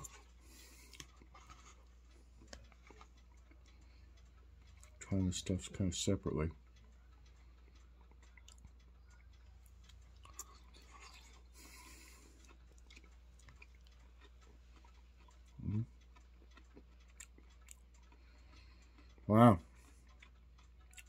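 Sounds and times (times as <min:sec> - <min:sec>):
quiet chewing of food: 0:00.0 - 0:05.5, 0:06.5 - 0:21.0.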